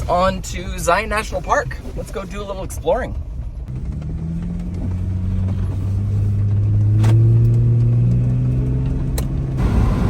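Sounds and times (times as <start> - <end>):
vehicle engine driving off: 3.7 - 10.0.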